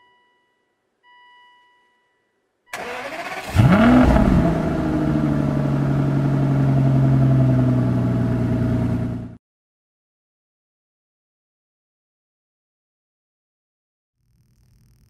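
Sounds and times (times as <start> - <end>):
car engine starting and idling: 2.7 - 9.4.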